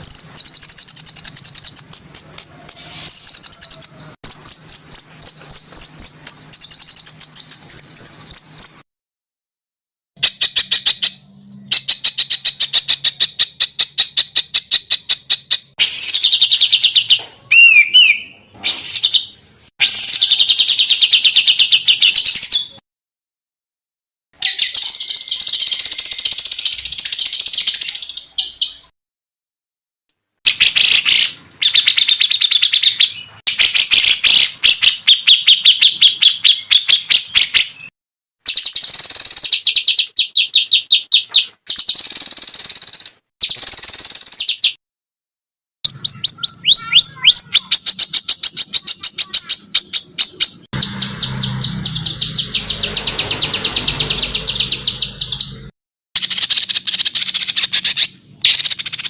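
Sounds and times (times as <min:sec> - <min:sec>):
songbird trilling: 0:00.0 - 0:08.8, 0:45.9 - 0:55.6.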